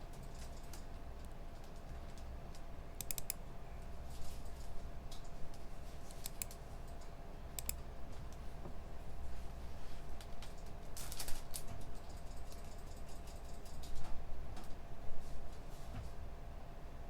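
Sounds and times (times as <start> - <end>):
low hum of room equipment: 0.0 - 17.0
computer keyboard keys clicking: 0.2 - 3.4, 6.1 - 7.8.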